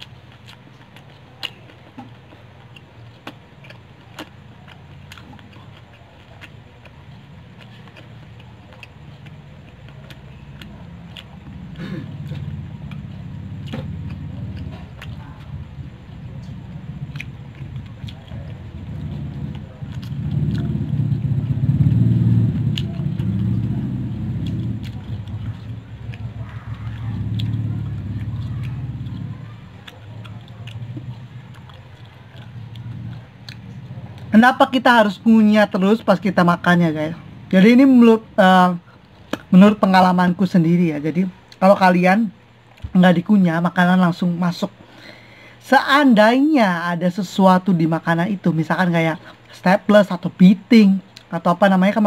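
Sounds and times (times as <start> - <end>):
person chewing fried chicken: 0.0 - 43.0, 48.7 - 50.2, 51.0 - 51.4
low steady rumble: 0.0 - 52.0.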